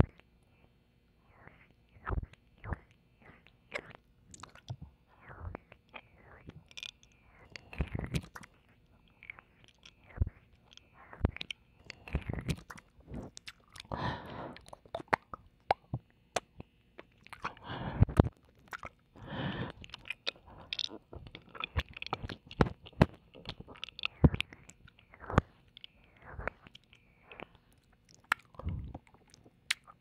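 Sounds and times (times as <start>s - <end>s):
wet mouth clicks and smacks: 1.9s - 30.0s
breathy hushes: 13.0s - 14.8s, 17.4s - 18.3s, 19.2s - 21.2s.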